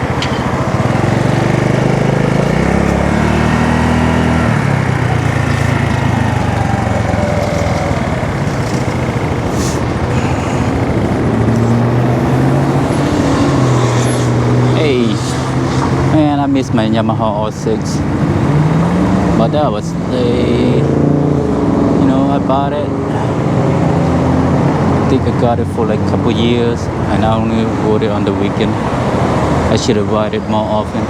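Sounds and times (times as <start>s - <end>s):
small motorcycle engine running: 0.0s - 20.9s
wind and road noise: 0.0s - 31.0s.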